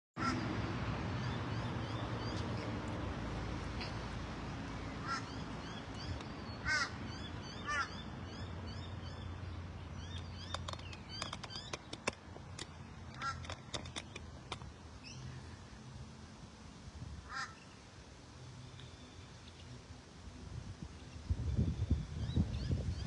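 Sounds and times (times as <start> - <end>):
small birds chirping: 1.1 - 15.8, 17.4 - 19.9
harsh bird calls: 4.8 - 12.2
sharp clicks: 10.1 - 14.7.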